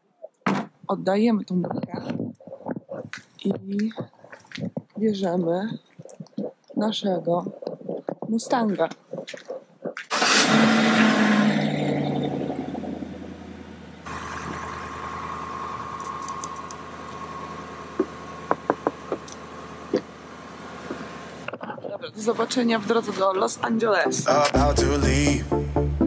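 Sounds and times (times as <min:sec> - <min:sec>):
car engine starting and idling: 0:10.1 - 0:23.6.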